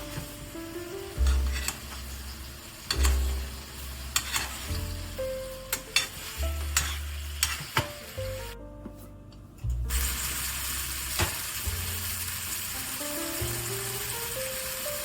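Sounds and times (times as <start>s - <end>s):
chicken sizzling in a frying pan: 0.0s - 8.6s, 9.9s - 15.0s
soft background music: 0.0s - 15.0s
utensil clicking against pan: 5.8s - 7.9s.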